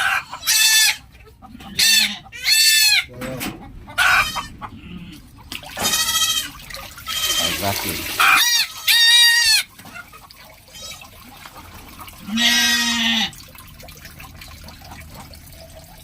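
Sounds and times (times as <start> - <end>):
goats bleating: 0.0 - 3.2, 4.0 - 9.7, 10.7 - 11.1, 12.2 - 13.4.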